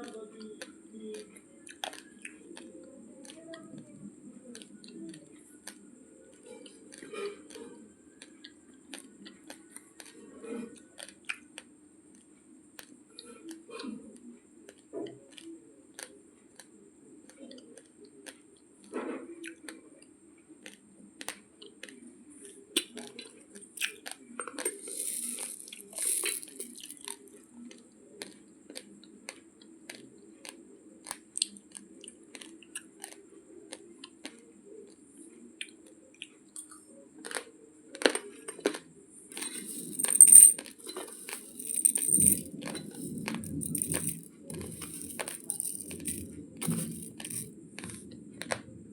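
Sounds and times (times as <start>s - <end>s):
raw rice grains crunched by teeth: 24.7s - 27.1s.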